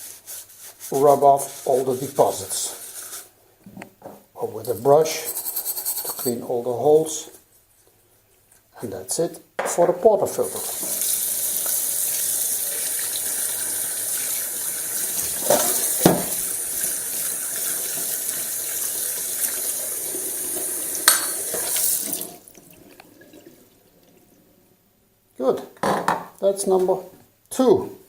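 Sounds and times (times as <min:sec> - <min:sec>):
tap water running into sink: 0:10.4 - 0:24.3.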